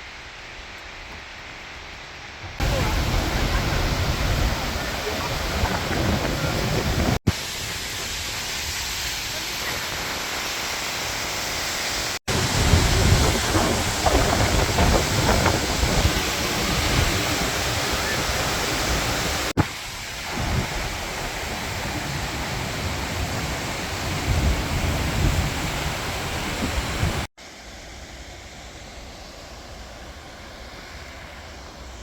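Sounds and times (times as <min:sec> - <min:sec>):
waterfall roaring: 0:01.9 - 0:27.3
wind gusting on microphone: 0:02.4 - 0:09.2, 0:12.3 - 0:27.3.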